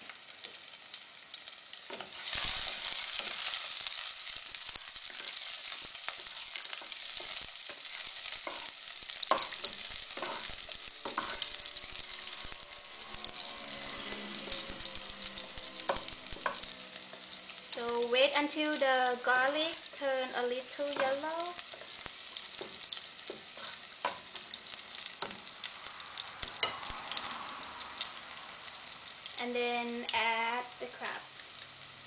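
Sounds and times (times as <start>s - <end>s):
garlic sizzling in hot oil: 0.0s - 32.0s
spatula scraping and knocking pot: 6.2s - 11.6s, 22.5s - 24.5s.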